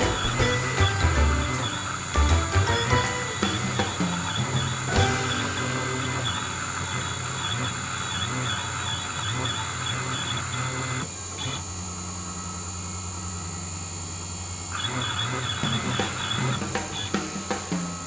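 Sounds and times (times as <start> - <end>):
high spindle whine: 0.0 - 18.0
stepper motor tones: 0.0 - 18.0.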